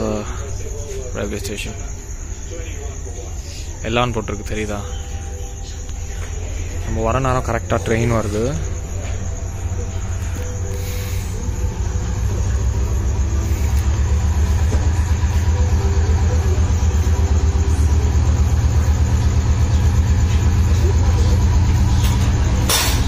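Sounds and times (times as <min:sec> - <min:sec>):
diesel train engine rumbling: 0:00.0 - 0:23.0
sharp clack: 0:22.0 - 0:23.0.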